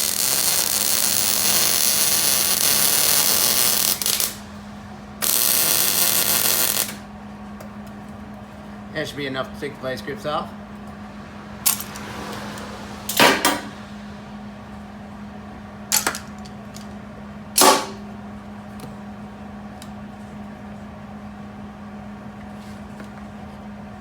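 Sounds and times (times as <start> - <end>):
steady low hum: 0.0 - 24.0
metal clanks from locking pliers: 15.9 - 16.9.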